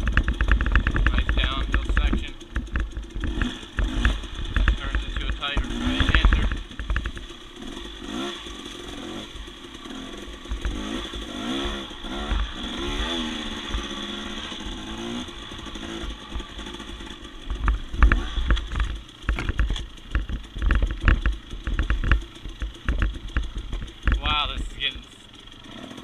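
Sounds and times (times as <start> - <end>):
rapid knocks and thumps: 0.0 - 8.0, 10.3 - 13.9, 15.2 - 24.8
dirt bike engine revving: 0.0 - 26.0.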